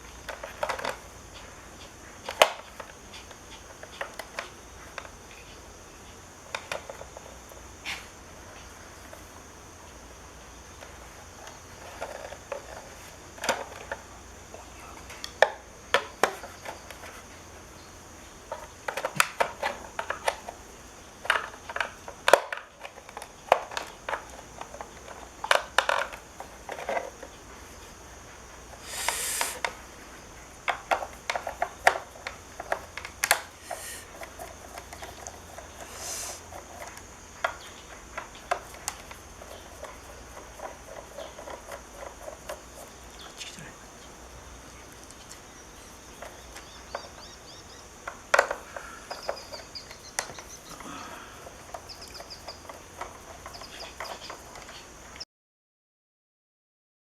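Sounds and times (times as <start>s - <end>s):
brief rasps: 28.8s - 29.6s, 33.6s - 34.1s, 35.8s - 36.5s
small hard parts clattering: 45.0s - 54.8s.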